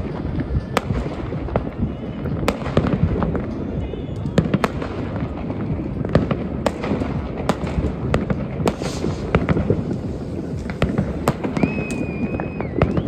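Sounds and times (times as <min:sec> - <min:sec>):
fireworks banging: 0:00.0 - 0:13.0
fireworks rumble and crackle: 0:00.0 - 0:13.0
whistling tone: 0:03.7 - 0:04.7, 0:11.4 - 0:13.0.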